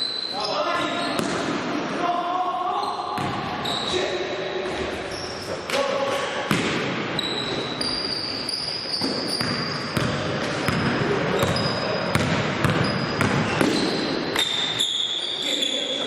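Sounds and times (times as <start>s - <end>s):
shoe squeaks on court: 2.8s - 4.1s, 7.2s - 16.0s
basketball bouncing: 3.2s - 3.5s, 6.5s - 7.1s, 9.0s - 14.5s.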